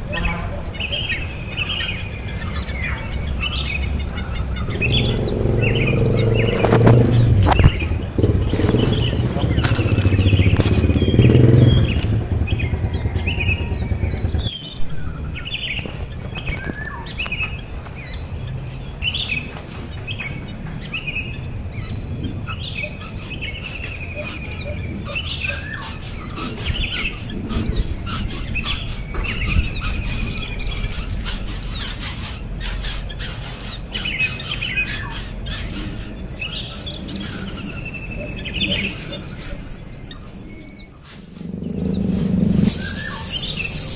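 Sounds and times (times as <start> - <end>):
low engine rumble: 0.0 - 18.8
small birds chirping: 0.0 - 43.9.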